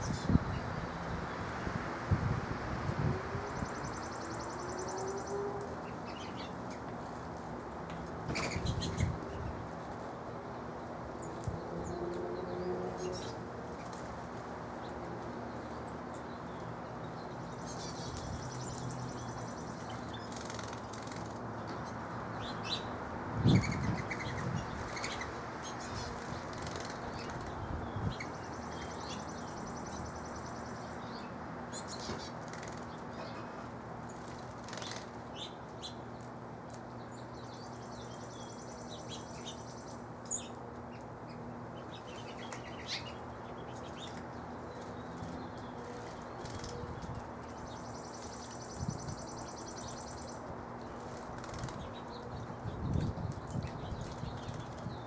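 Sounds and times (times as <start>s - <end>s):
high bird chirp: 17.7s - 21.1s
birds flapping wings: 26.2s - 27.6s.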